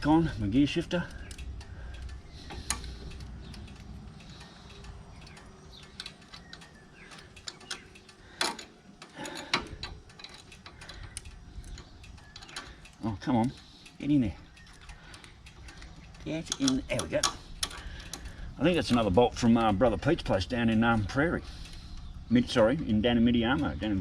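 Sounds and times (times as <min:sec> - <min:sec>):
metallic clicks of tools: 0:00.9 - 0:19.8.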